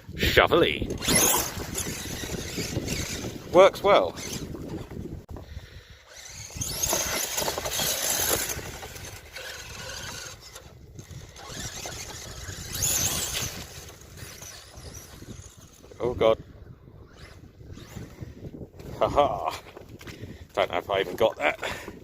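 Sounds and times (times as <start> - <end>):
electric motor whining: 0.9 - 5.0, 6.0 - 16.0.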